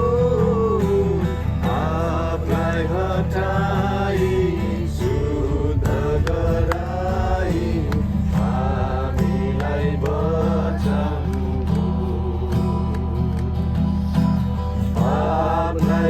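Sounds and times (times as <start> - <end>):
person singing slow chant-like melody: 0.0 - 16.0.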